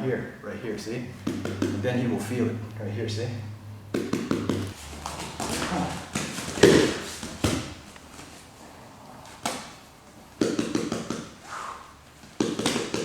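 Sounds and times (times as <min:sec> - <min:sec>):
taps and thuds on a training mat: 0:01.2 - 0:01.8, 0:03.9 - 0:07.8, 0:10.4 - 0:11.4, 0:12.2 - 0:13.0.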